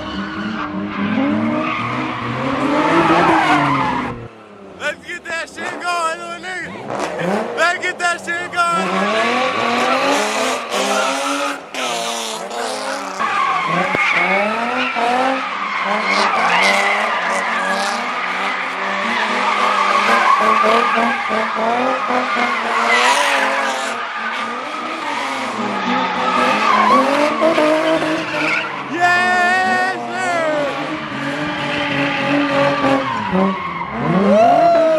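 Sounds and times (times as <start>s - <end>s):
tyres squealing and skidding: 0.0s - 34.9s
car engine revving: 6.6s - 7.6s, 8.7s - 34.6s.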